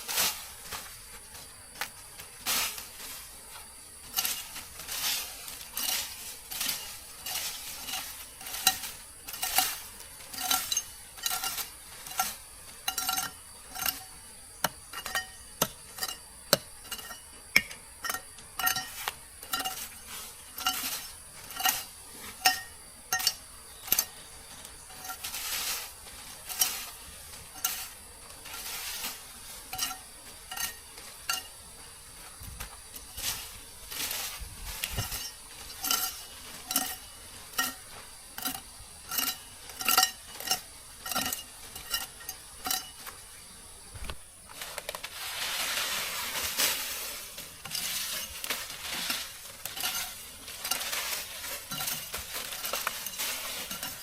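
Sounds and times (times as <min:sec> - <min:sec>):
utensil scraping in a pan: 0:00.0 - 0:43.4, 0:44.5 - 0:54.0.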